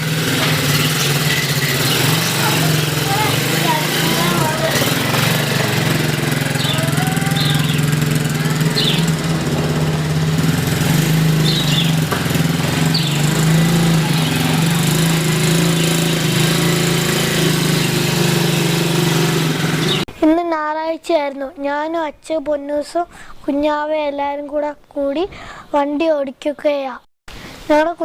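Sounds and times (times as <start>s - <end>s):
quad bike engine running: 0.0s - 20.1s.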